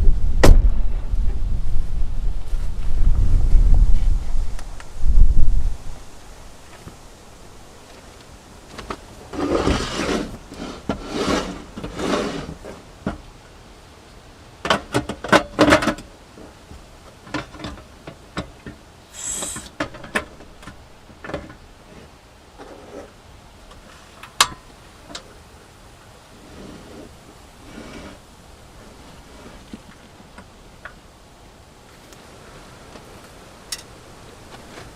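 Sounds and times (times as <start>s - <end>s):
objects scraping and rubbing: 8.8s - 12.8s, 21.8s - 23.2s, 26.4s - 28.3s
short hiss: 19.1s - 19.8s.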